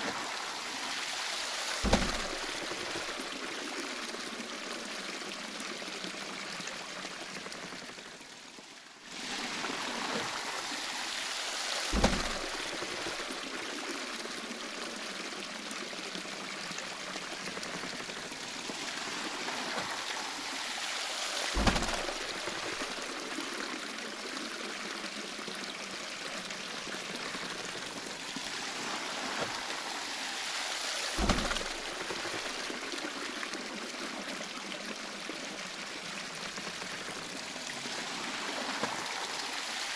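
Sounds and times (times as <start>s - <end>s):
water flowing and splashing: 0.0s - 39.9s
waterwheel deep thump: 1.8s - 3.4s, 11.9s - 13.5s, 17.1s - 20.4s, 21.5s - 23.2s, 31.2s - 32.9s.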